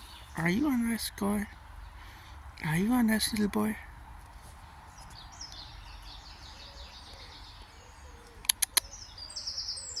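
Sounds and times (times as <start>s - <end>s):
small birds chirping: 0.0s - 10.0s
sharp clicks: 8.4s - 8.9s.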